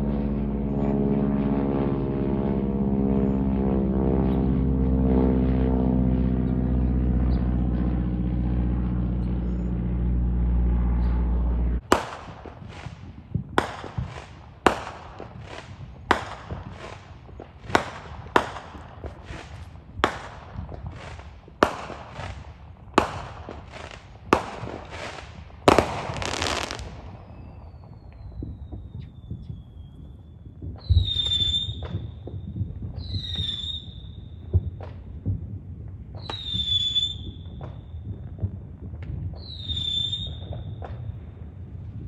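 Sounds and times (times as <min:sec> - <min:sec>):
propeller aircraft drone: 0:00.0 - 0:42.0
fireworks bangs: 0:09.5 - 0:42.0
fireworks crackling: 0:11.8 - 0:42.0.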